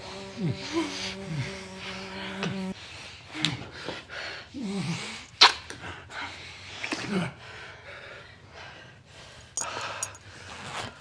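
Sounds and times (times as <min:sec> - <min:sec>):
heavy breathing: 0:02.8 - 0:10.5
people kissing: 0:05.4 - 0:05.8.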